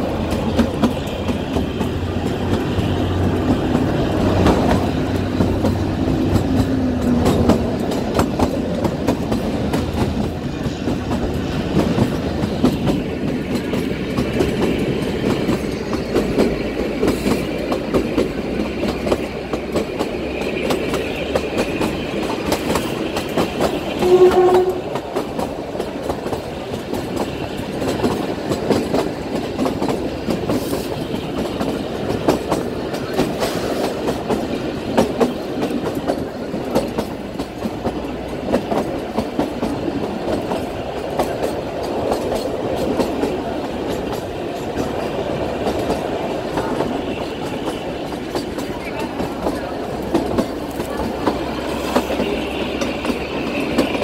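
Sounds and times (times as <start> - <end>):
train rumbling: 0.0 - 54.0
train horn toot: 23.9 - 25.0.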